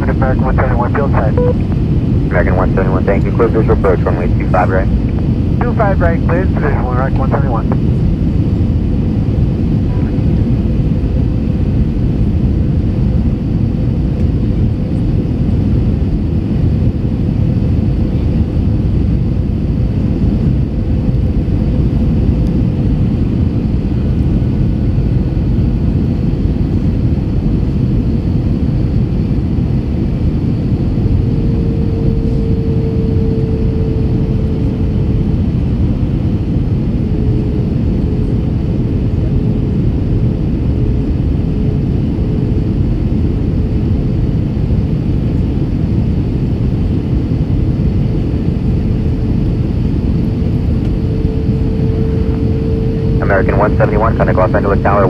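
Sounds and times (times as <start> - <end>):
faint steady hum: 0.0 - 8.8, 29.0 - 44.0, 46.8 - 55.0
aircraft engines and airflow roar: 0.0 - 55.0.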